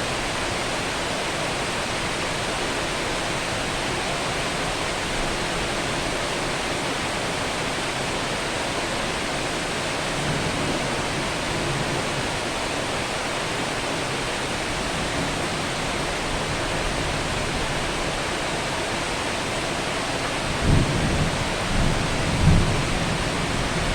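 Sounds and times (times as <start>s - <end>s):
heavy rain falling: 0.0s - 23.9s
thunder rumbling: 20.5s - 23.9s.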